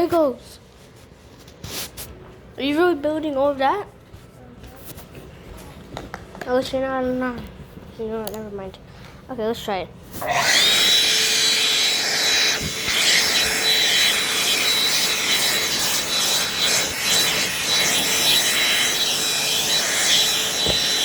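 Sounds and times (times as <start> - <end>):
hand vacuum motor whine: 10.2 - 21.0.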